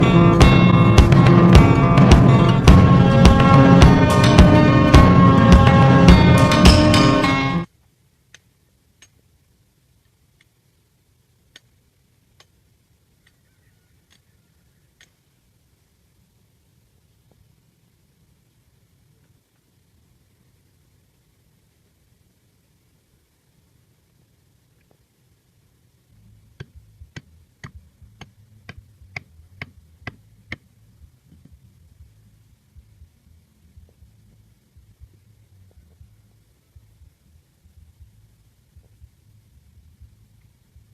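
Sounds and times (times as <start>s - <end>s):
faint low hum: 0.0s - 40.9s
faint sharp ticks: 11.5s - 11.7s, 12.4s - 12.6s, 15.0s - 15.2s.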